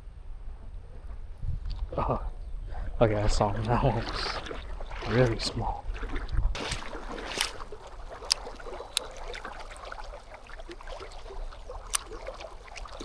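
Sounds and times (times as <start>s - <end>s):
creek water trickling: 2.7s - 13.0s
sharp clicks: 6.6s - 13.0s.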